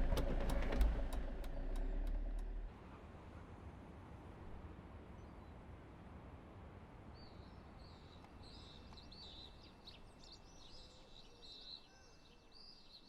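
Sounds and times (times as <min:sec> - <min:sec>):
low steady rumble: 0:00.0 - 0:02.8.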